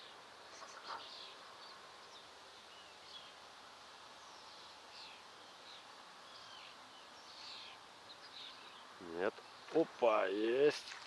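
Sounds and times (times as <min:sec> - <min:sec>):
small birds chirping and whistling: 0:04.2 - 0:09.7.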